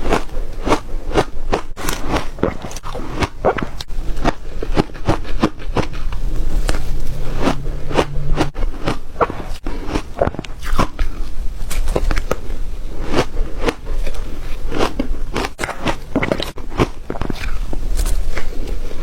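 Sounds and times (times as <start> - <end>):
ice being chewed: 0.0 - 6.8, 7.4 - 19.0.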